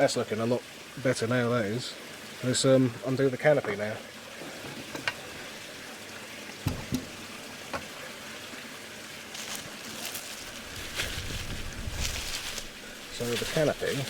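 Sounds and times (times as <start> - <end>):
steady background hiss: 0.0 - 14.0
packaging crinkling: 9.4 - 14.0.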